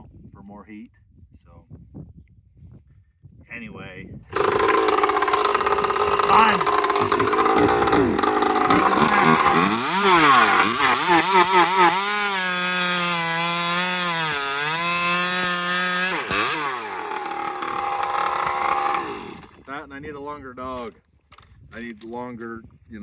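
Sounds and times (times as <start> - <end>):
chainsaw revving: 4.3 - 19.8.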